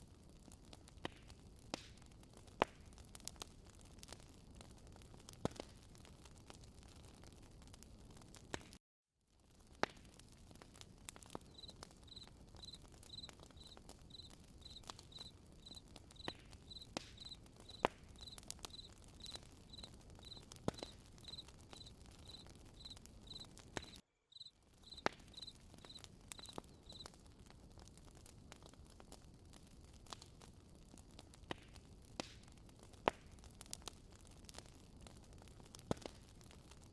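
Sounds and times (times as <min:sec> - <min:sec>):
campfire crackling and popping: 0:00.0 - 0:08.8, 0:09.4 - 0:36.9
cricket chirping: 0:11.5 - 0:23.5, 0:24.3 - 0:27.0.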